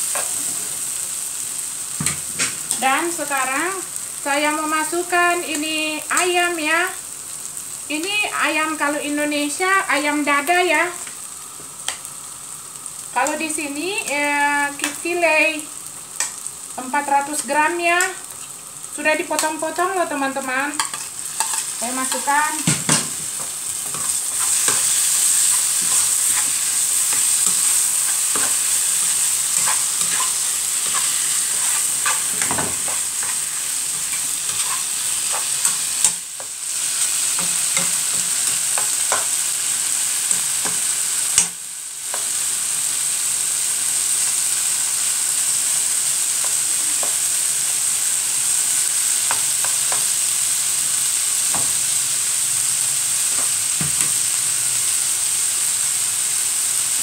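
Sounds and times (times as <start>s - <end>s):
chicken sizzling in a pan: 0.0s - 57.0s
utensil scraping a pan: 23.3s - 36.2s.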